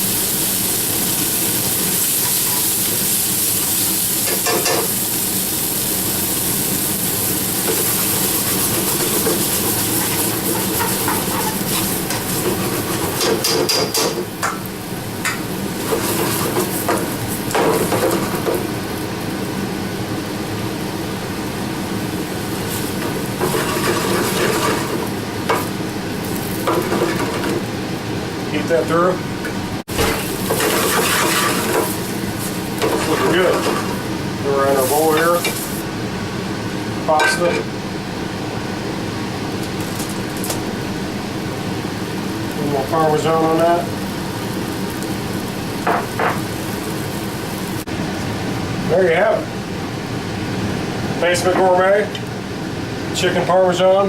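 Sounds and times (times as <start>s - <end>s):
sauce sizzling in a pan: 0.0s - 28.4s, 29.9s - 37.0s, 37.8s - 48.0s
utensil scraping a pan: 7.7s - 13.7s, 30.5s - 31.9s.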